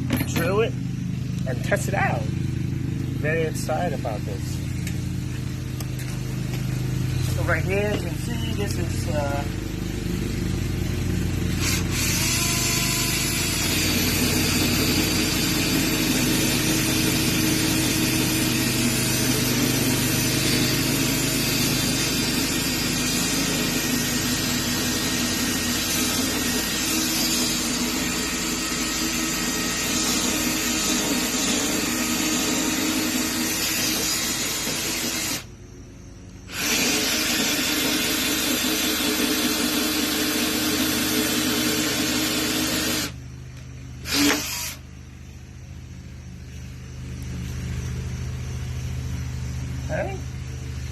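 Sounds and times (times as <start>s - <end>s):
drill hole saw cutting wood: 11.5s - 35.5s, 36.5s - 43.2s, 44.0s - 44.8s.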